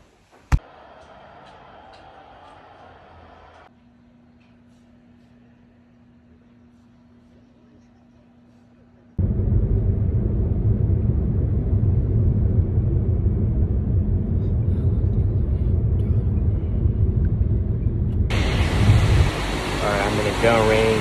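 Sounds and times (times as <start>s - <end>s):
car cabin rumble: 9.2s - 21.0s
steady hiss: 18.3s - 21.0s.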